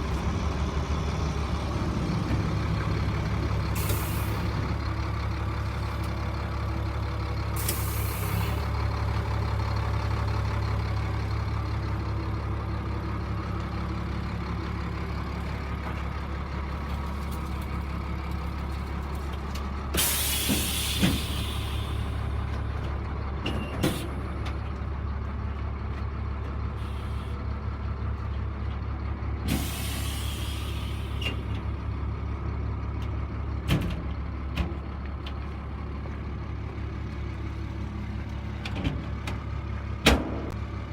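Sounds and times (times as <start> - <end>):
truck diesel engine idling: 0.0 - 40.9
compressed air hissing: 20.0 - 22.3.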